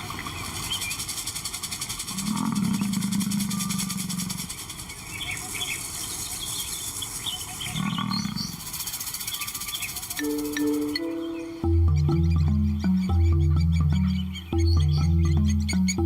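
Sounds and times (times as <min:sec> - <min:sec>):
small birds chirping: 0:00.0 - 0:16.0
lion calling low: 0:02.1 - 0:04.5
music: 0:10.2 - 0:16.0.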